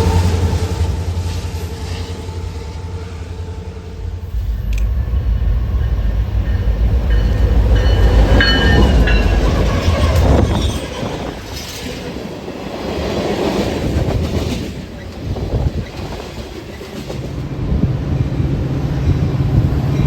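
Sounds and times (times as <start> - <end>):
wheels squealing on rail: 0.0 - 12.3
train rumbling on rails: 0.0 - 20.0.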